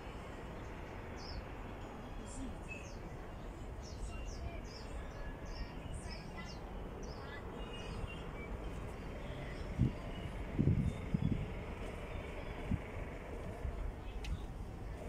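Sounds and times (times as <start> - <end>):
small birds chirping: 0.6 - 1.5.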